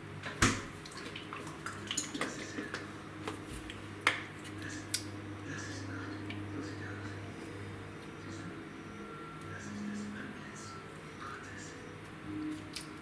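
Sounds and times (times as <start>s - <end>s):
low steady hum: 0.0s - 13.0s
dishes and utensils clattering: 1.0s - 3.4s.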